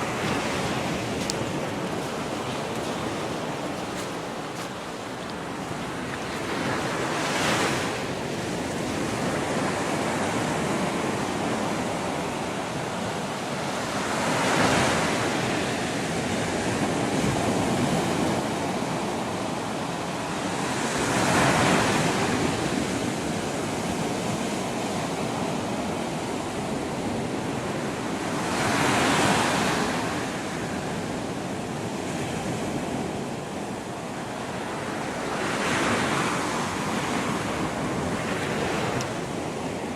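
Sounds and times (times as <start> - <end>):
steady wash of water: 0.0 - 11.8, 34.0 - 39.9
waves breaking: 0.0 - 18.9, 32.2 - 39.9.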